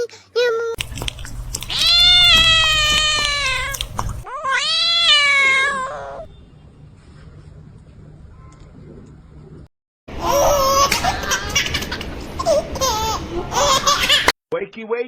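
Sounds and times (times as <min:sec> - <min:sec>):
cat meowing loudly: 0:01.7 - 0:03.8, 0:04.4 - 0:06.2.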